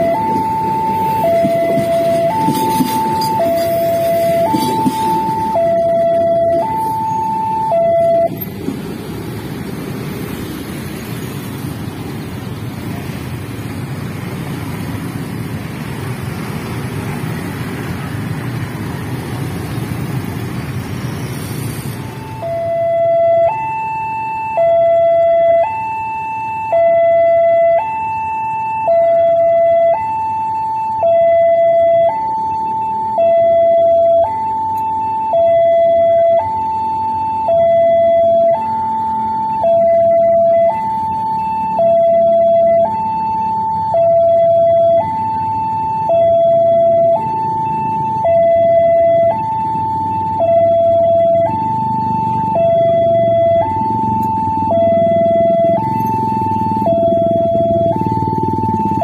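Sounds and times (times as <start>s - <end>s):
level crossing two-tone alarm: 0.0s - 8.3s, 22.2s - 59.0s
train wheels rumbling on rails: 0.2s - 5.8s, 8.3s - 10.1s.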